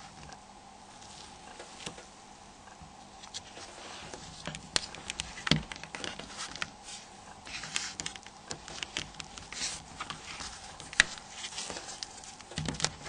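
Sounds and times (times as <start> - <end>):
plastic parts clicking: 12.0 - 13.0.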